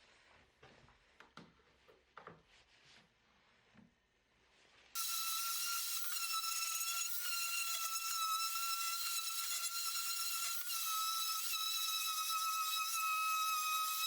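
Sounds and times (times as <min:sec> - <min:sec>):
woodworking power tool whining: 0:05.0 - 0:14.0.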